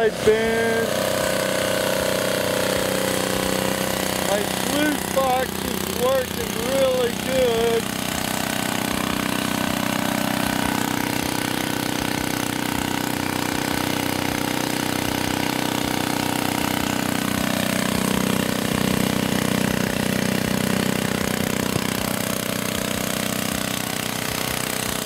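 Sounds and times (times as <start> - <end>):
small gas engine running: 0.0 - 25.0.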